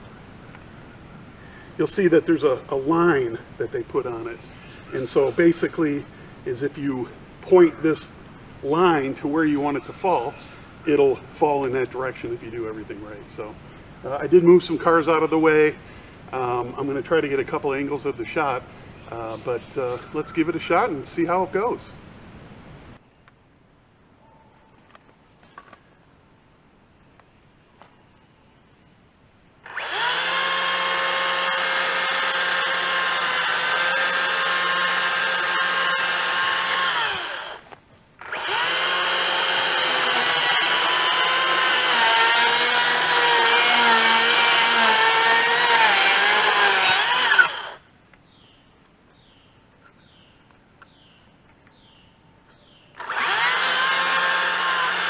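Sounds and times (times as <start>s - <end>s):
chainsaw cutting wood: 29.6s - 47.8s, 53.0s - 55.0s.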